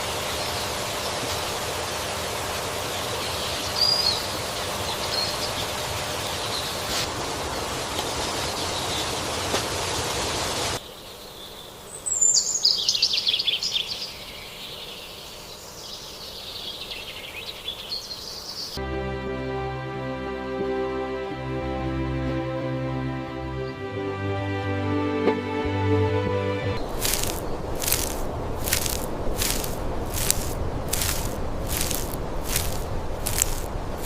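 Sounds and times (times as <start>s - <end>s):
steady background hiss: 0.0s - 18.9s.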